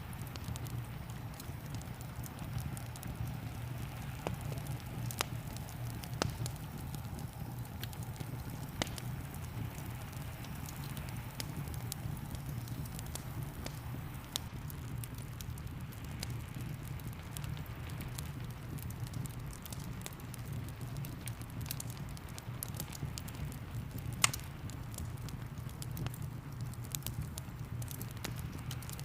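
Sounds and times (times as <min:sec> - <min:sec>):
fire popping: 0:00.0 - 0:29.0
wood fire crackling: 0:00.0 - 0:29.0.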